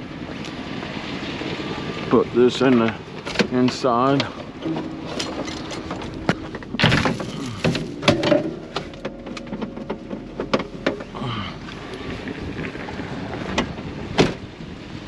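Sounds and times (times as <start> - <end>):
objects knocking and clattering: 4.6 - 11.4.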